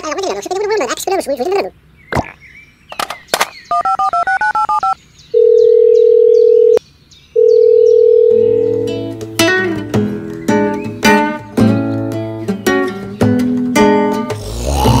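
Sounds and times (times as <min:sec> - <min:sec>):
telephone ringing tones: 0:03.7 - 0:06.8, 0:07.4 - 0:09.0
touch-tone dialling beeps: 0:03.7 - 0:06.8, 0:07.4 - 0:08.9
acoustic guitar music: 0:08.3 - 0:15.0.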